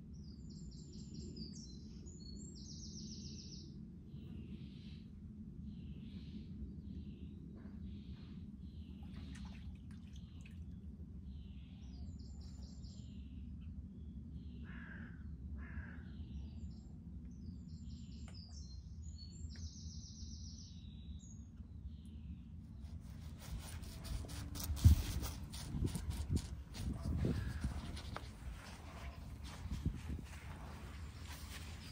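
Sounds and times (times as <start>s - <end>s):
birds chirping: 17.7s - 31.9s.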